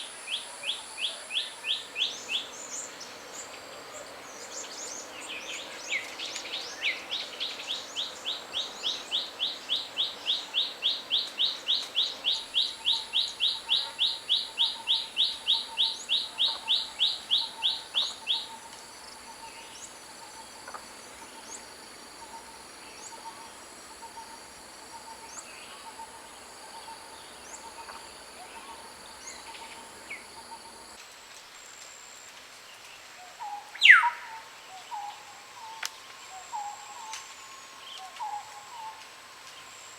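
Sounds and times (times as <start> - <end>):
high insect drone: 0.0 - 31.0.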